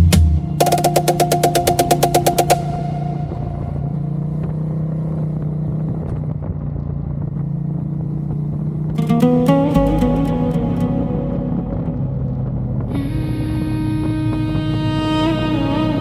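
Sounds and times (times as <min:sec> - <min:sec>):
music: 0:00.0 - 0:03.8, 0:09.0 - 0:16.0
road noise: 0:00.5 - 0:16.0.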